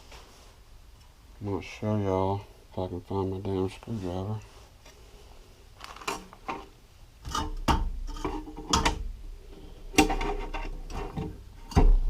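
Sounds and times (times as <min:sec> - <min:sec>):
hand tools clinking and scraping: 0:05.8 - 0:08.9, 0:09.5 - 0:12.0.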